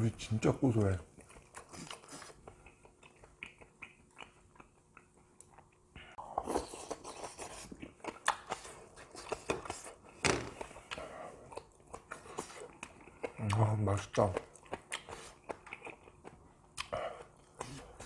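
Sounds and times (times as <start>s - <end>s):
wet chewing and lip-smacking: 1.1s - 18.0s
clicky mouth sounds: 16.8s - 17.0s.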